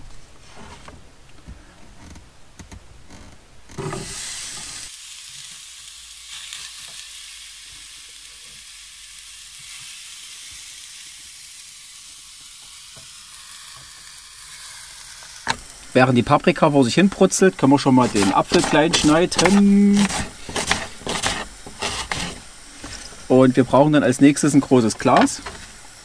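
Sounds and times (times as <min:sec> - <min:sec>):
pepper sizzling in a pan: 0:03.8 - 0:26.0.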